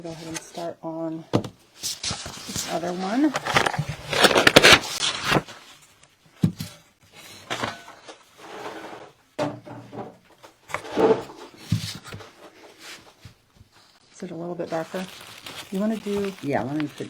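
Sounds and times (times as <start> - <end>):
objects clattering: 6.4 - 12.9.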